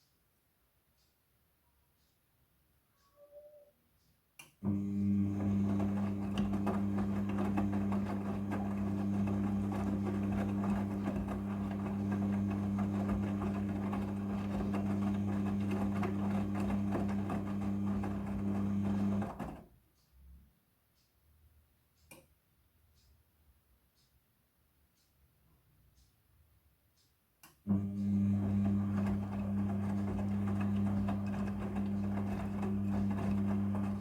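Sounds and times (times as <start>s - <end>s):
washing machine tumbling: 4.7s - 19.6s, 27.7s - 34.0s.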